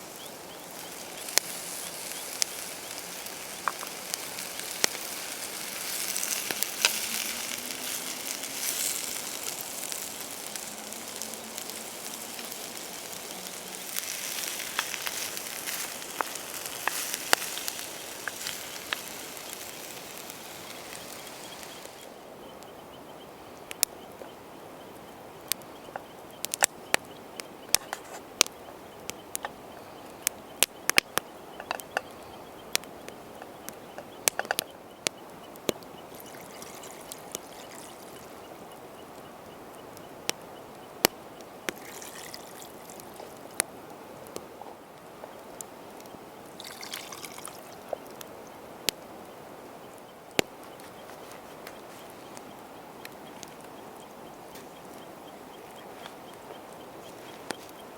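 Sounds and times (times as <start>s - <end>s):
food sizzling: 0.0s - 22.4s, 35.7s - 40.4s, 41.7s - 43.6s, 45.5s - 49.2s
campfire popping and crackling: 0.0s - 57.9s.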